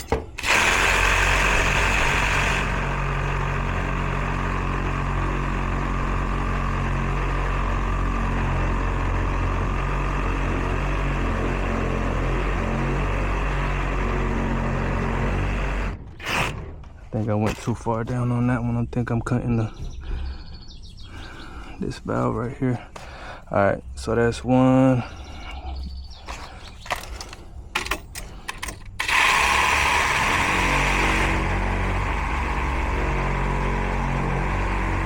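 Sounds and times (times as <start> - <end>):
reciprocating saw cutting pipe: 0.3 - 16.7, 29.0 - 35.0.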